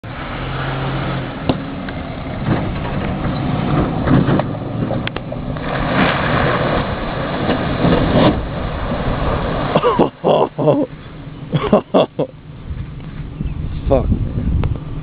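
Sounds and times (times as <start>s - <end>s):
rushing noise: 0.0s - 11.9s.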